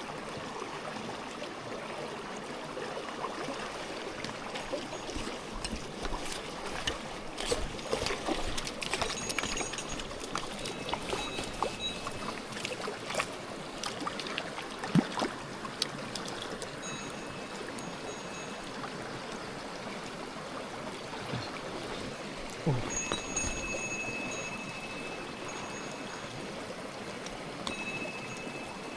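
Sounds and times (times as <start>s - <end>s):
stream water rushing and splashing: 0.0s - 28.9s
sharp splashes and ticks: 4.1s - 17.9s, 27.2s - 28.5s.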